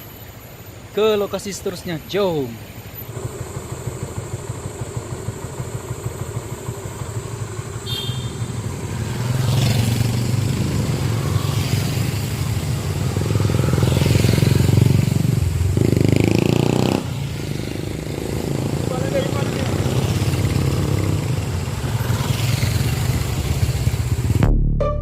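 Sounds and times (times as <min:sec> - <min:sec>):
motorcycle engines revving: 0:02.7 - 0:24.5.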